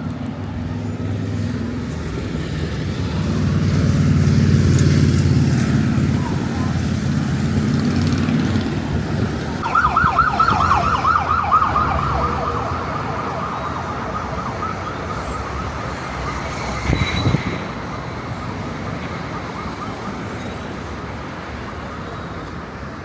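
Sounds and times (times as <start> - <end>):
road traffic hum: 0.0 - 23.0
siren yelping: 9.6 - 17.5, 18.3 - 20.9.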